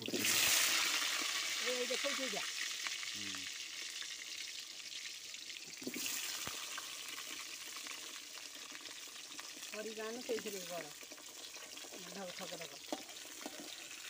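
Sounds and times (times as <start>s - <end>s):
potatoes sizzling in hot oil: 0.0s - 14.0s.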